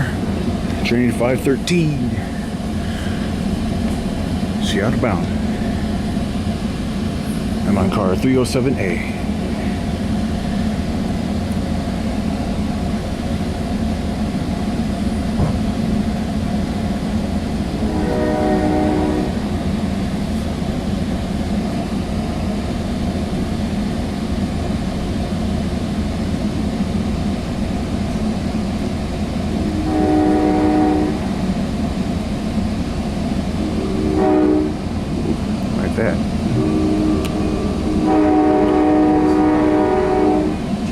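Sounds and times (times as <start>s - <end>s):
train low rumble: 0.0s - 40.9s
locomotive horn blasts: 17.8s - 19.5s, 29.7s - 31.4s, 33.6s - 34.9s, 36.5s - 40.6s.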